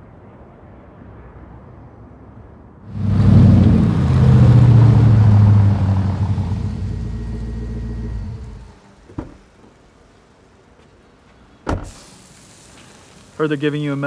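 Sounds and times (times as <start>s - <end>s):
car engine running: 2.9s - 9.5s
car door opening click: 11.6s - 12.1s.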